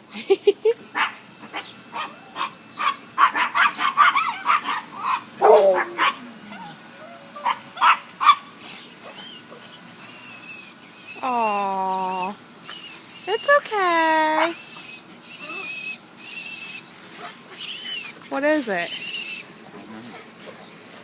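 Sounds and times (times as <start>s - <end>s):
dogs barking: 0.9s - 10.1s, 14.2s - 18.3s
dog whining: 1.6s - 21.0s.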